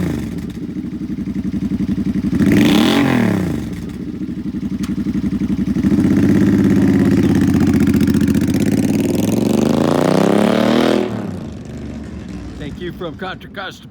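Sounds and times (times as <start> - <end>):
motorcycle engine revving: 0.0 - 13.5.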